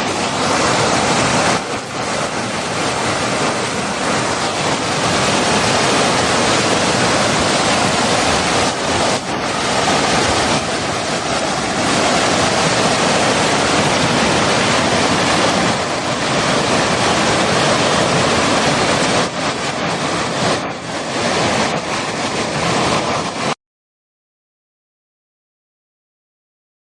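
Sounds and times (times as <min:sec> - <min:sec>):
flowing water rushing: 0:00.0 - 0:23.6.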